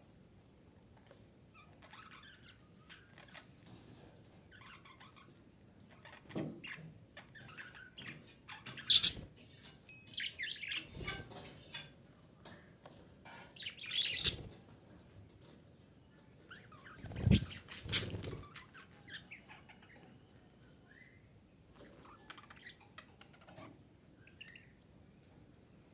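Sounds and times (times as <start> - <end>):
budgerigar chattering: 8.9 - 9.2, 13.6 - 14.4, 17.2 - 18.4.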